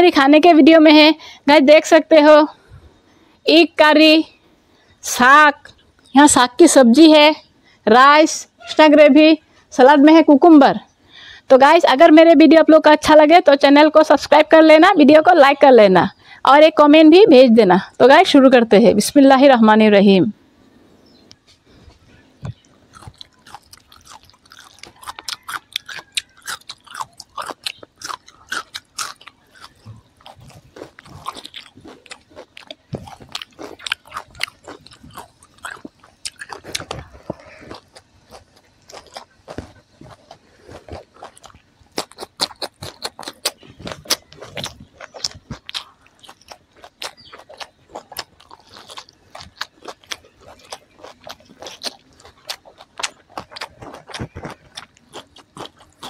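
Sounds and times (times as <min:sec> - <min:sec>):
crunching raw vegetables: 0:21.3 - 0:56.0.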